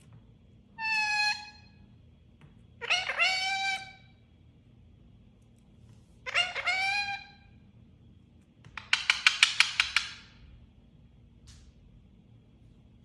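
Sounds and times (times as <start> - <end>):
parrot squawking: 0.8 - 1.7, 2.8 - 4.1, 6.2 - 7.5
parrot sharp clicks: 8.7 - 10.3.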